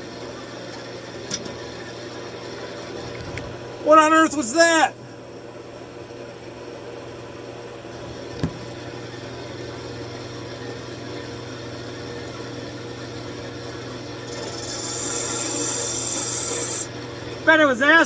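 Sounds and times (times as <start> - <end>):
lathe motor humming: 13.9 - 17.4
tool rubbing on spinning wood: 14.2 - 16.9.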